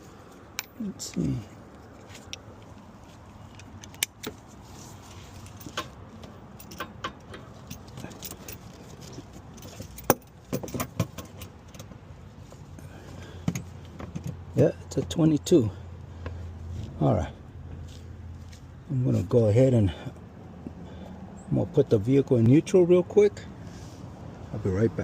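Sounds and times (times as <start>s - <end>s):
metal sockets clinking: 3.3s - 4.4s, 5.4s - 12.0s.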